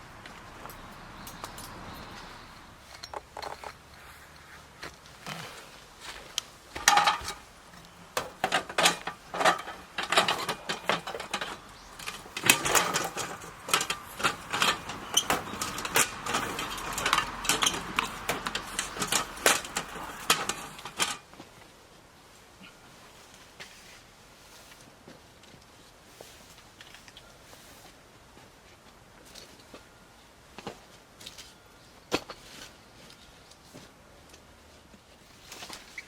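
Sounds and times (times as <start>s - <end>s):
objects knocking and clinking: 2.9s - 3.8s, 6.8s - 7.5s, 8.2s - 21.2s.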